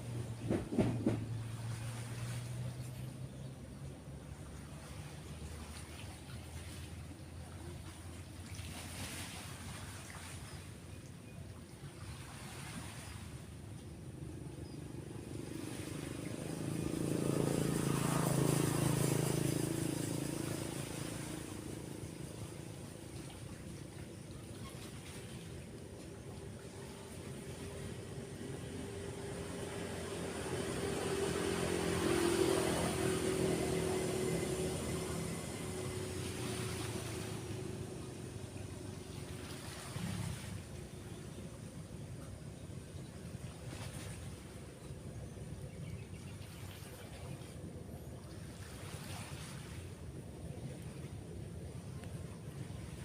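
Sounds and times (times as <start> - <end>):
vehicle driving past: 0.0 - 9.8, 14.2 - 41.1
surf washing: 0.0 - 53.0.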